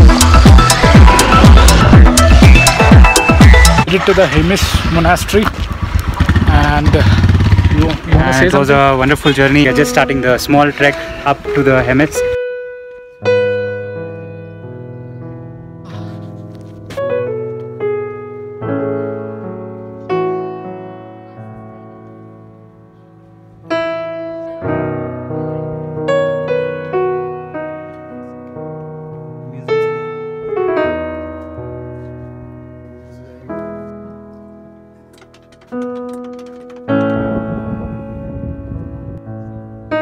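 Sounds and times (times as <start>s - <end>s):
slow solo piano: 12.4s - 40.0s.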